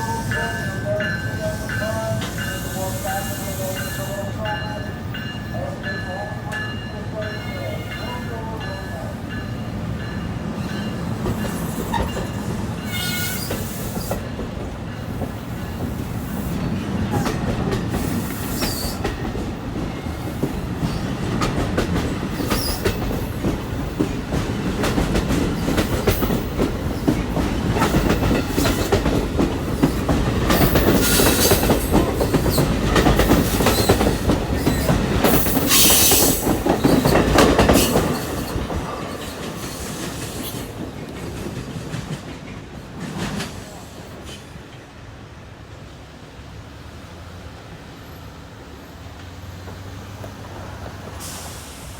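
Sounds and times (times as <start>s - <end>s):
train wheel squeal: 0.0s - 5.7s, 10.0s - 14.4s, 15.1s - 21.1s, 22.0s - 24.1s, 29.8s - 40.7s
train wheels clicking over rails: 10.2s - 44.8s.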